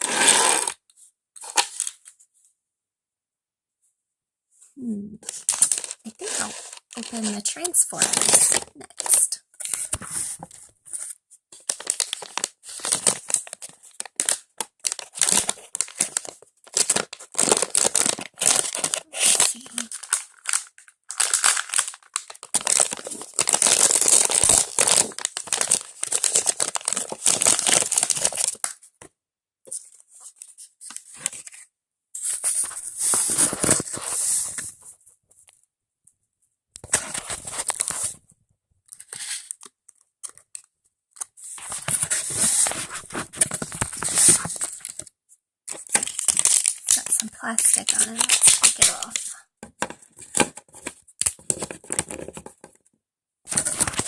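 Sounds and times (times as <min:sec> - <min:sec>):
packaging tearing and crinkling: 0:01.4 - 0:02.0, 0:05.2 - 0:10.0, 0:11.6 - 0:28.8, 0:32.3 - 0:34.2, 0:36.8 - 0:38.2, 0:41.6 - 0:45.1, 0:45.7 - 0:49.3, 0:53.5 - 0:54.0.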